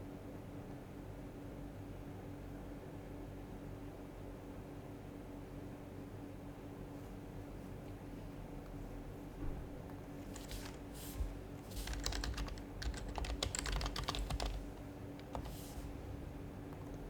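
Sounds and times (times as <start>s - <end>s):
soft keyboard typing: 10.2s - 16.0s.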